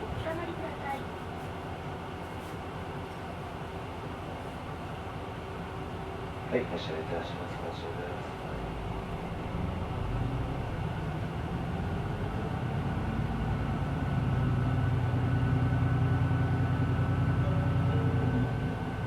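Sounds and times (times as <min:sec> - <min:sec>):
bus engine accelerating: 0:08.0 - 0:19.0.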